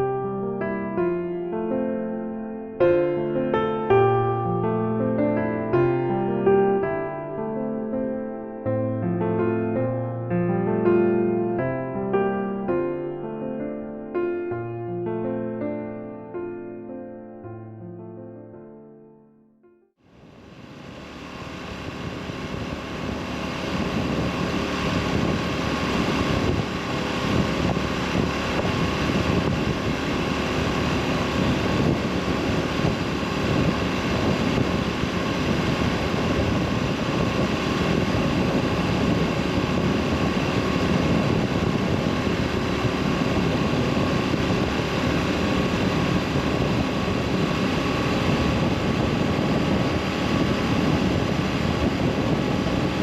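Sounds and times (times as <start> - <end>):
road noise: 20.1 - 53.0
motorcycle engine cruising: 20.2 - 53.0
wind noise: 20.2 - 53.0.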